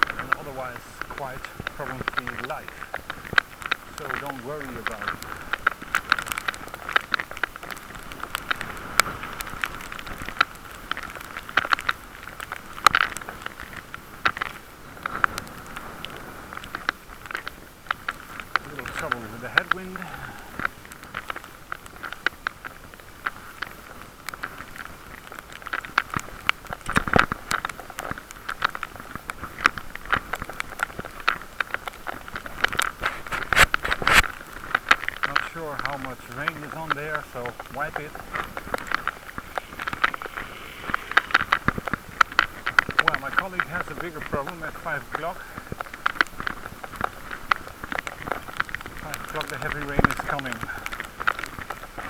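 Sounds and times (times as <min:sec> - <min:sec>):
bicycle ride noise with crackles: 0:00.0 - 0:52.0
muffled wind noise: 0:00.0 - 0:52.0
steady rushing haze: 0:37.5 - 0:43.0.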